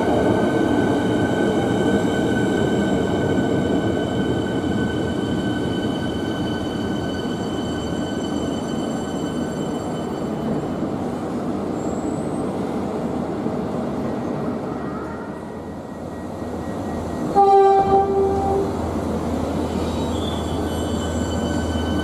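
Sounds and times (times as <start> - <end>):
train rumbling: 0.0 - 22.0
train horn blast: 17.3 - 18.8.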